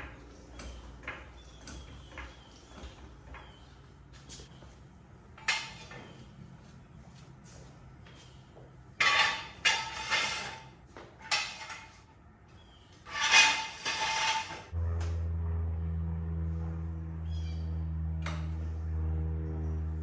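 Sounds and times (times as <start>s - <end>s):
metal clattering and clanking: 9.0s - 12.0s
steady low hum: 14.6s - 20.0s.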